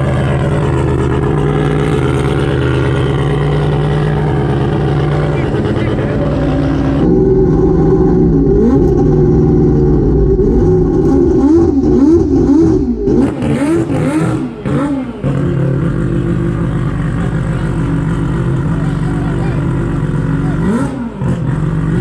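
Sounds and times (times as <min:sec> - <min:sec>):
rotary engine revving: 0:00.0 - 0:22.0.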